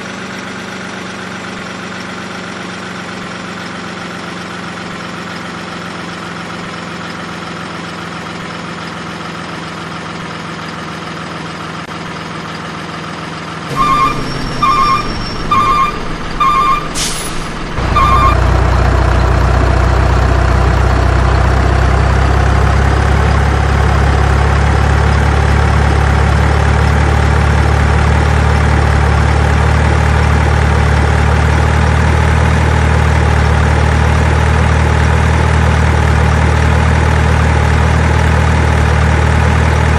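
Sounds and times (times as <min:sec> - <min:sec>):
truck engine idling: 0:00.3 - 0:39.9
reversing beeps: 0:13.7 - 0:18.4
air-brake hiss: 0:16.9 - 0:17.8.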